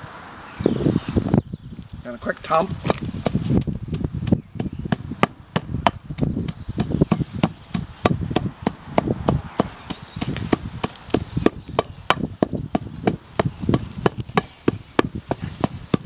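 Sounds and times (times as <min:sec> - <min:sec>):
hand tamper thudding on asphalt: 0:02.8 - 0:16.0.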